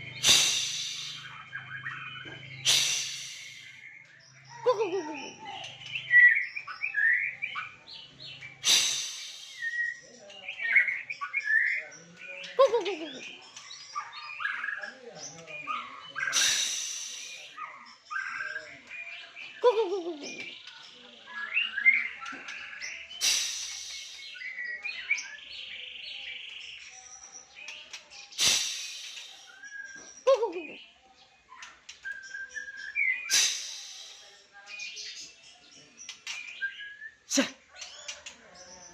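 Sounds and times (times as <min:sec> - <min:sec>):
songbird chirping and singing: 0:00.0 - 0:38.9
harsh noise bursts: 0:00.1 - 0:01.3, 0:02.6 - 0:03.7, 0:28.4 - 0:29.5
harsh rasping bird call: 0:00.1 - 0:01.6, 0:02.6 - 0:03.8, 0:08.6 - 0:09.9, 0:16.2 - 0:17.6, 0:23.1 - 0:24.4, 0:28.4 - 0:29.6, 0:33.2 - 0:34.2.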